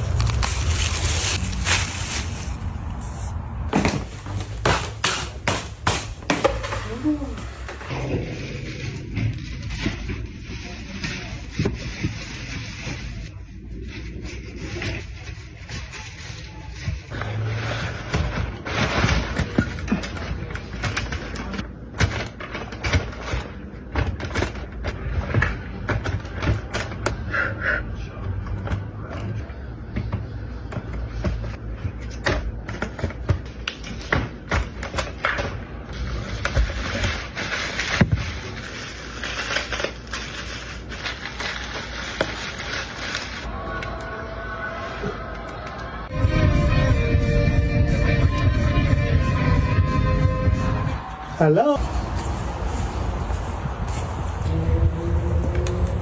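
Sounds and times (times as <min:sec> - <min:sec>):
low rumble: 0:00.0 - 0:04.3.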